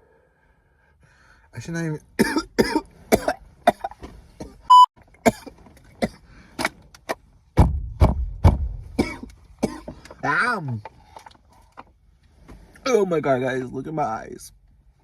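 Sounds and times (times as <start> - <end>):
man coughing hard: 2.2 - 4.6, 5.2 - 6.2, 8.9 - 10.0
short high beep: 4.7 - 4.9.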